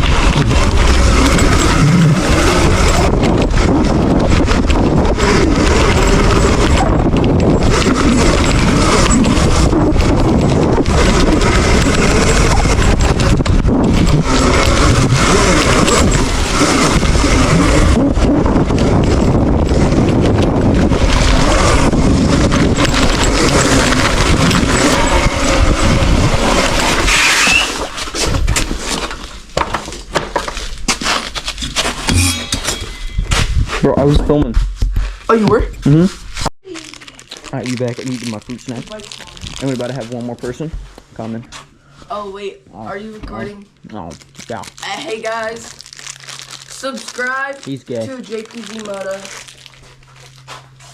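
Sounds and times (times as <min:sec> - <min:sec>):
rushing noise on microphone: 0:00.0 - 0:29.1, 0:30.6 - 0:41.5
dirt bike motor: 0:00.0 - 0:36.4.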